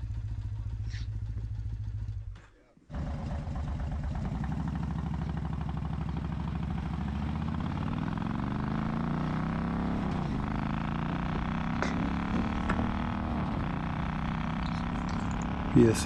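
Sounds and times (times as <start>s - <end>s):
motorcycle engine fast idle: 0.0s - 2.3s, 2.9s - 6.9s.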